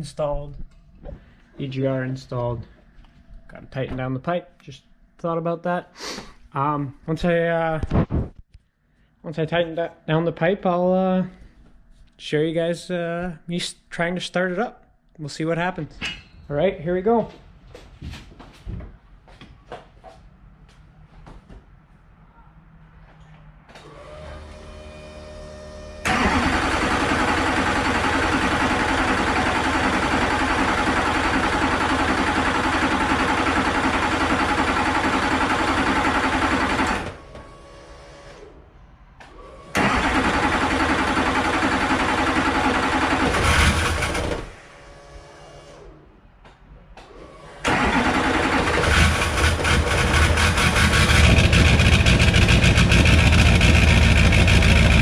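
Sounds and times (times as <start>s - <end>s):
diesel engine cranking: 26.0s - 37.6s, 39.2s - 45.2s, 47.2s - 55.0s.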